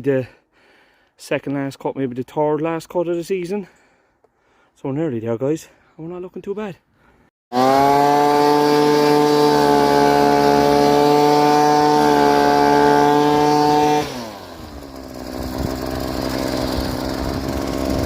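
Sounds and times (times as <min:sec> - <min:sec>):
small petrol engine revving: 0:07.5 - 0:18.0.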